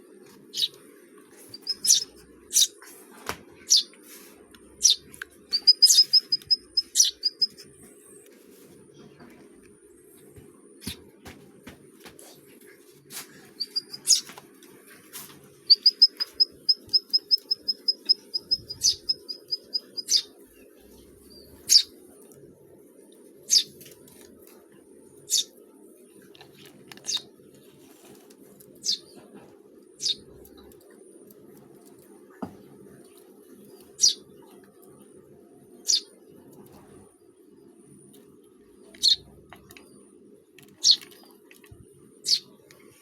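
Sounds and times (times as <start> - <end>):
small birds chirping: 0.5 - 0.8, 1.4 - 2.8, 3.6 - 4.0, 4.8 - 7.8, 13.4 - 14.3, 15.6 - 22.0, 23.5 - 23.8, 25.3 - 27.5, 28.7 - 29.3, 30.0 - 30.8, 33.1 - 34.6, 35.8 - 36.8, 38.2 - 42.9.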